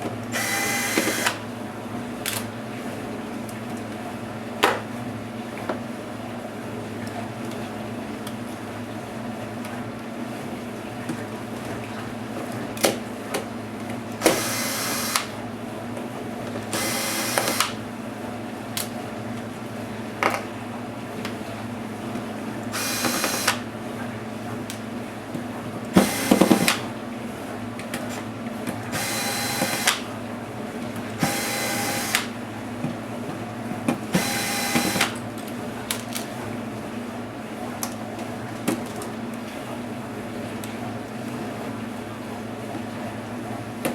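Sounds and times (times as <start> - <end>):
electric screwdriver running: 0.3 - 1.4, 14.2 - 15.3, 16.8 - 17.8, 22.8 - 23.6, 26.0 - 26.8, 29.0 - 30.0, 31.2 - 32.3, 34.2 - 35.2.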